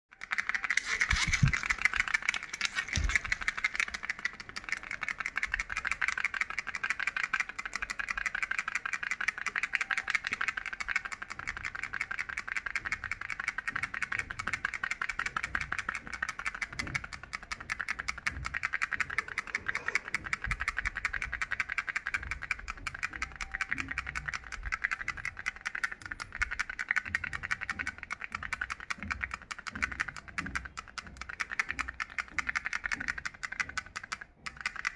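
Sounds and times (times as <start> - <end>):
hand fan rattling: 0.1 - 34.9.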